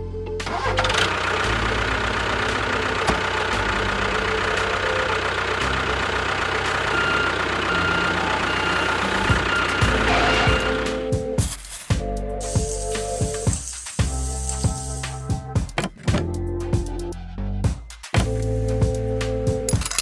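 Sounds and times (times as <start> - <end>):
small motor running: 12.4 - 15.3.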